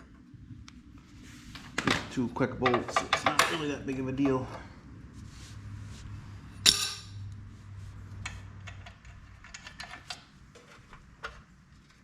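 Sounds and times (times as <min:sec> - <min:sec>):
sharp metallic clank: 0:06.6 - 0:07.2.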